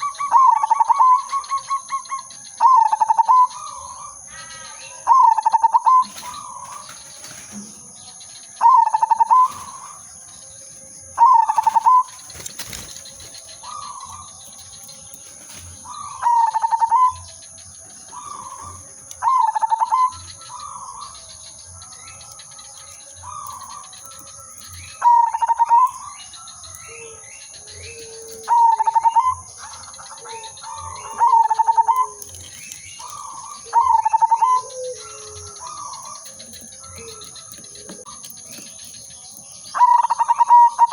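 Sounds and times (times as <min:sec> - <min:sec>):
dove cooing: 0:00.0 - 0:07.8, 0:08.6 - 0:10.0, 0:11.2 - 0:17.4, 0:18.0 - 0:40.9.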